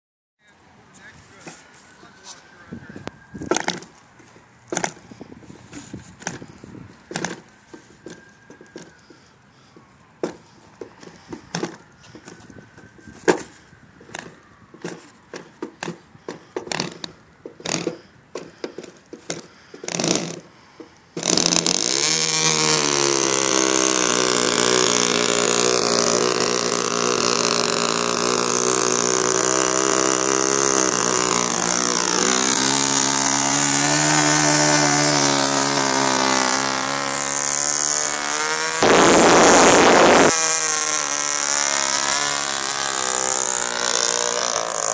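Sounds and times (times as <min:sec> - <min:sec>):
model plane engine buzzing: 0:21.2 - 0:44.9.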